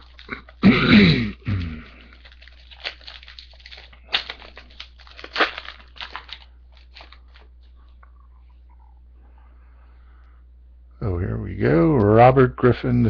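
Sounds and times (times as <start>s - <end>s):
foil wrapper tearing and crinkling: 0.0s - 7.8s
cards rustling: 1.9s - 8.4s.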